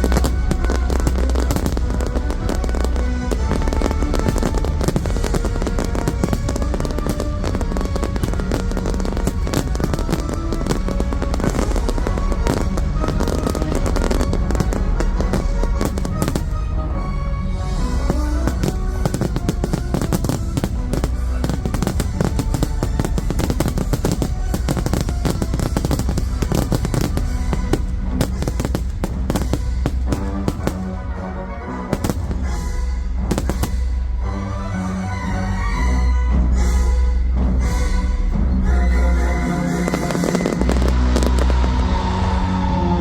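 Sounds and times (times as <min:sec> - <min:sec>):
fireworks bangs and crackling: 0:00.0 - 0:31.3, 0:31.9 - 0:35.0, 0:39.6 - 0:43.0
loud music: 0:00.0 - 0:43.0.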